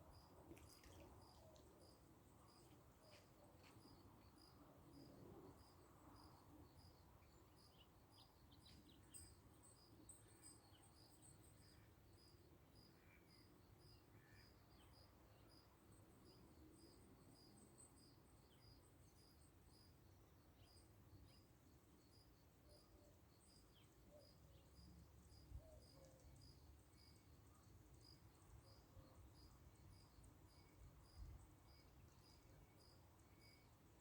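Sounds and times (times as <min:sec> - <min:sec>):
faint bird chirps: 0:20.6 - 0:33.8.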